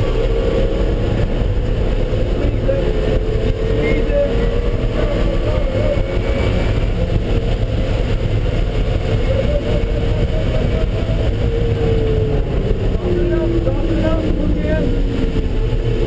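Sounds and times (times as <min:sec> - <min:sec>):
car engine running hard: 0:00.0 - 0:16.0
road and wind noise: 0:00.0 - 0:16.0.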